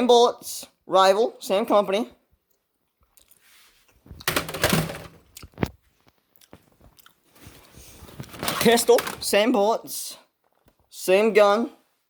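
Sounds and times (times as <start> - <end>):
plastic toys rustling: 3.4 - 5.8, 6.6 - 9.4.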